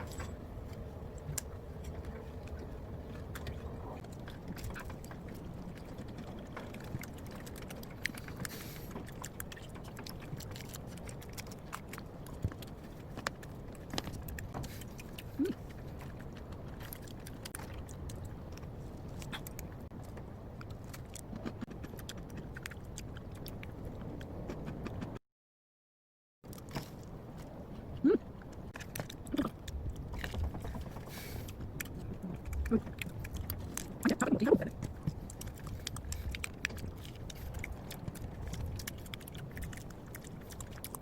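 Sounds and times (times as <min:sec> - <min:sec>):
steady low hum: 0:00.0 - 0:25.2.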